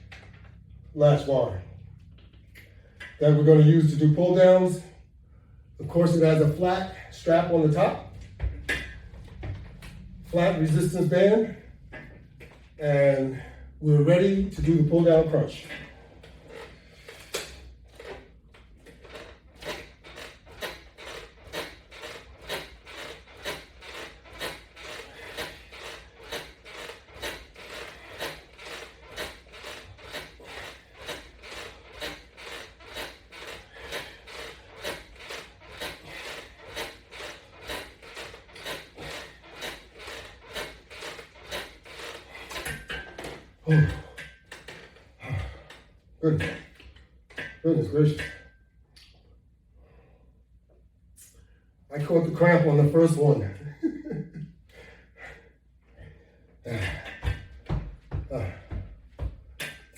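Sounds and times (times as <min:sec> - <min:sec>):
resistance band rasping: 0:05.8 - 0:48.5.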